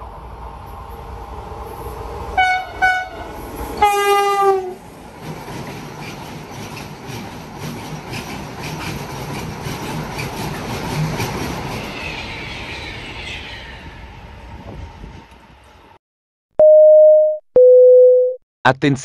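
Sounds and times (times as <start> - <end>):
train wheels clicking over rail joints: 5.1 - 12.0
station chime tone: 16.6 - 18.4.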